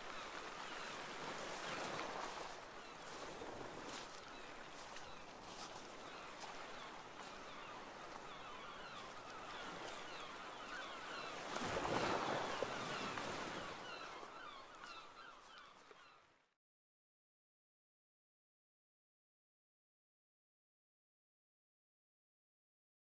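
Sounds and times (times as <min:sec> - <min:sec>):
waves washing in: 0:00.0 - 0:15.0
birds chirping: 0:04.1 - 0:16.2.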